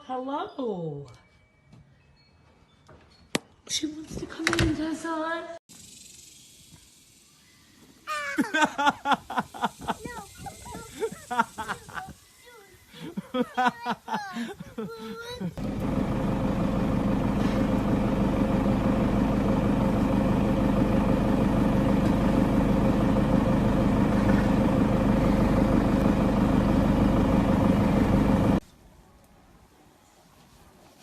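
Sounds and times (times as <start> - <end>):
engine idling: 15.6 - 28.6.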